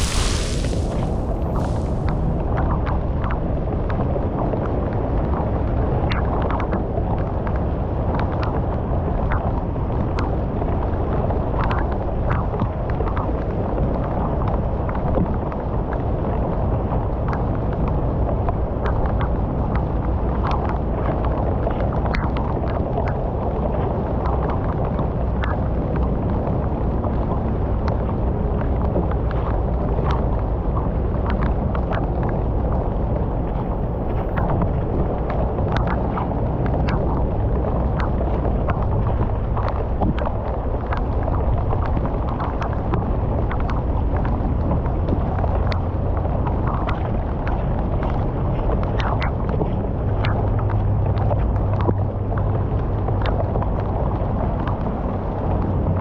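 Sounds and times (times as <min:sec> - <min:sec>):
small water splashes: 0:00.0 - 0:02.3
water rushing through culvert: 0:00.0 - 0:02.4.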